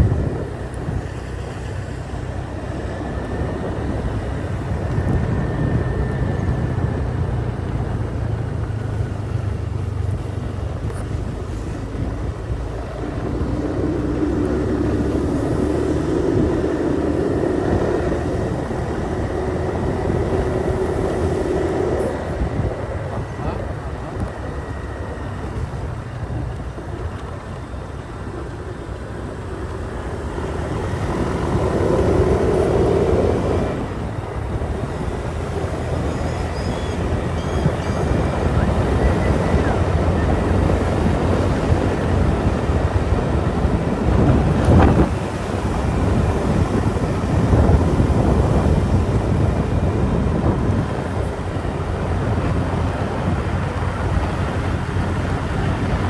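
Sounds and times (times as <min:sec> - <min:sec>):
motorbike engine running: 0:00.0 - 0:56.0
wind rushing over microphone: 0:00.0 - 0:56.0.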